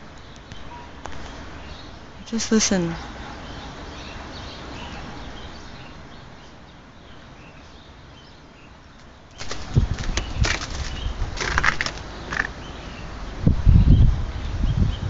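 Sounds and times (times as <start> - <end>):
wind rushing through trees: 0.0 - 15.0
ice and snow crunching on deck: 9.4 - 12.5.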